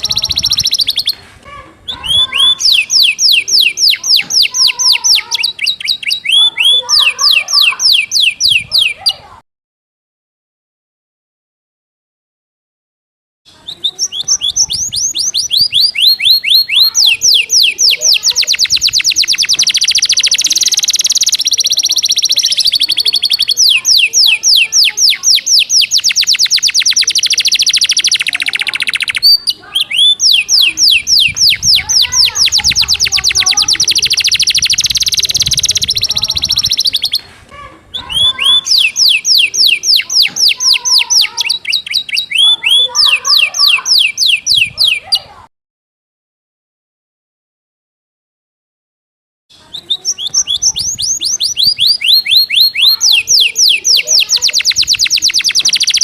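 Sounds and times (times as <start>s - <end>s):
canary singing rapid trills: 0.0s - 1.2s, 1.9s - 9.2s, 13.5s - 45.3s, 49.5s - 56.0s.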